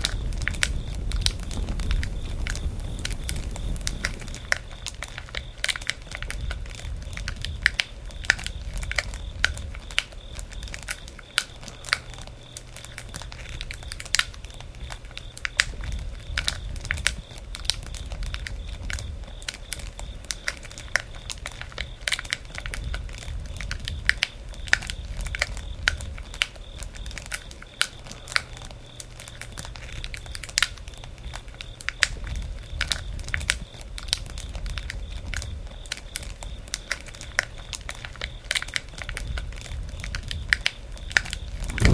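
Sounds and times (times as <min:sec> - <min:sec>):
campfire crackling and popping: 0:00.0 - 0:05.3, 0:41.5 - 0:41.9.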